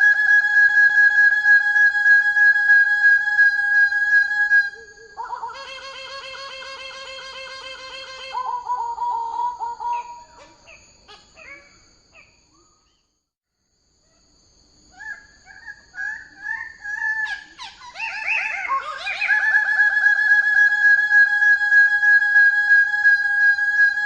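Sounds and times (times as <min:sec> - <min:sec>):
bird pulsing nasal calls: 0:14.9 - 0:20.0.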